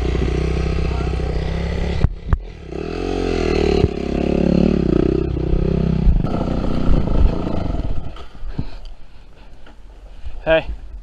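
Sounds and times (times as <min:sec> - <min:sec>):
dirt bike engine revving: 0:00.0 - 0:08.2.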